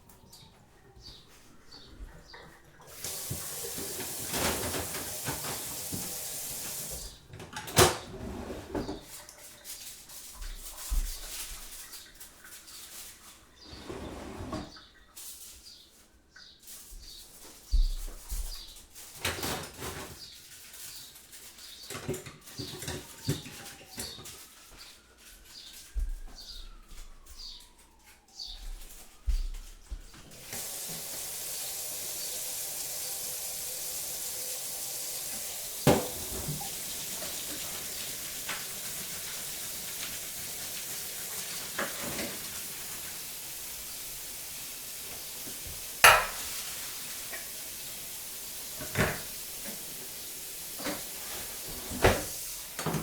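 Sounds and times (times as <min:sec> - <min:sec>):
birds chirping: 0:00.0 - 0:03.0, 0:20.2 - 0:30.3
crockery and utensils clattering: 0:02.3 - 0:09.2, 0:46.0 - 0:46.7
running water hiss: 0:02.8 - 0:07.2, 0:30.3 - 0:53.0.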